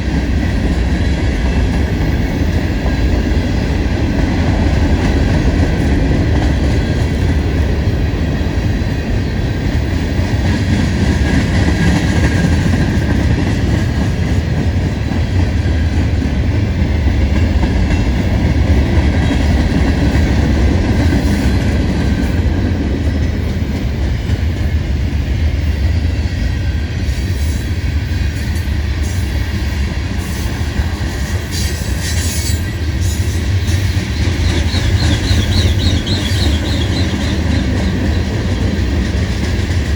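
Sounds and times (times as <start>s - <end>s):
freight train wheels rumbling: 0.0s - 39.9s
wheel squeal: 31.5s - 38.0s.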